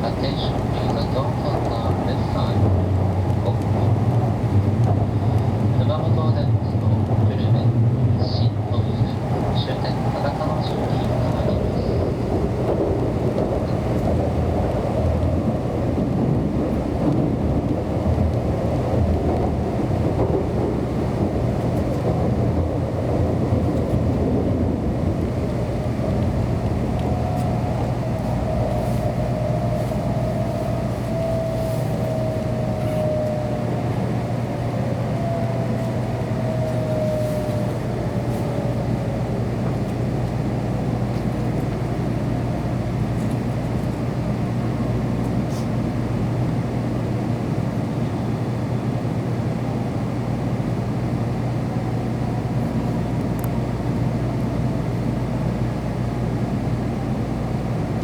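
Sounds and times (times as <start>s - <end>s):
train running rumble: 0.0s - 58.0s
train motor whine: 23.1s - 43.5s.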